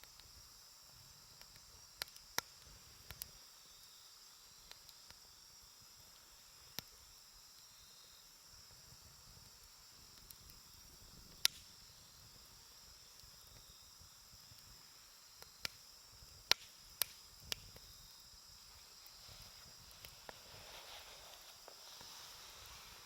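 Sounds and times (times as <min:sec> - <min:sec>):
wood fire crackling and popping: 0:00.0 - 0:03.4, 0:08.7 - 0:23.0
insects chirring: 0:00.0 - 0:23.0.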